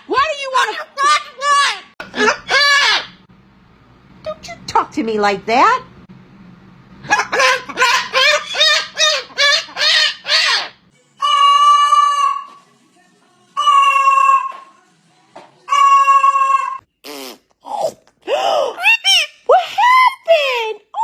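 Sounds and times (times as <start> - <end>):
parrot calling: 0.2 - 3.3, 7.0 - 12.6, 13.6 - 14.7, 15.7 - 18.0, 18.6 - 20.1.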